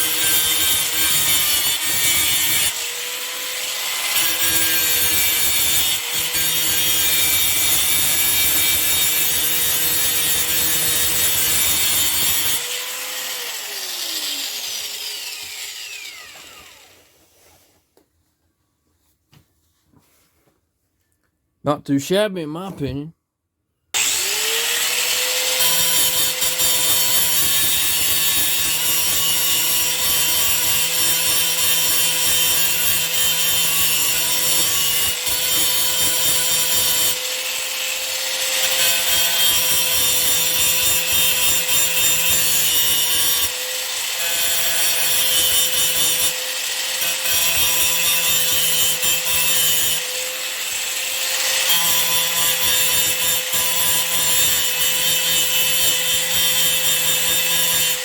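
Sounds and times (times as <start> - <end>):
grinding wheel on workpiece: 0.0 - 17.0, 24.0 - 58.0
angle grinder whining: 0.0 - 17.1, 24.0 - 40.6.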